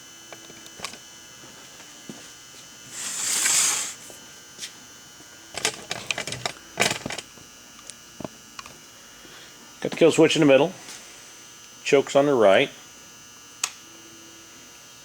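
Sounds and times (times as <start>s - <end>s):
faint steady hum: 0.0s - 15.0s
brief hiss: 2.9s - 4.0s.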